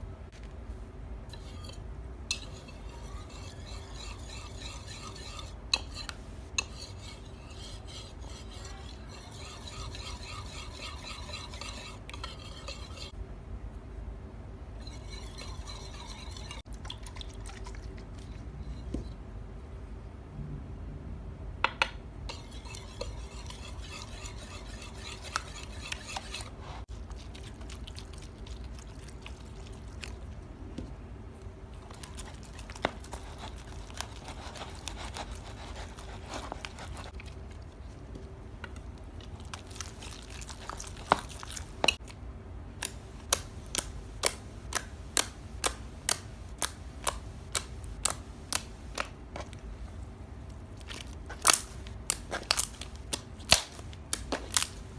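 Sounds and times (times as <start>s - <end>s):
slime scraping: 1.3s - 13.2s, 14.8s - 16.7s, 22.3s - 27.7s, 31.9s - 37.2s, 42.8s - 49.6s.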